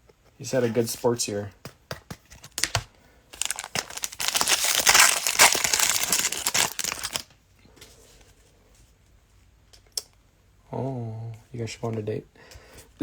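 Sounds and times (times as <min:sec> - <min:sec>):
cellophane wrapper tearing and crinkling: 0:03.4 - 0:07.3.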